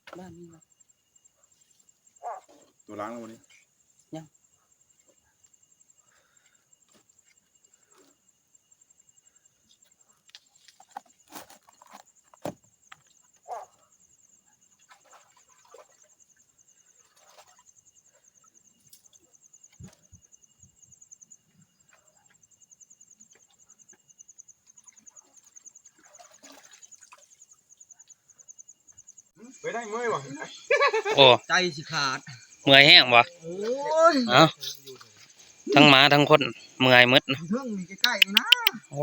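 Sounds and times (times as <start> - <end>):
high insect trilling: 28.0 - 39.0
clicks and snaps: 38.0 - 38.8.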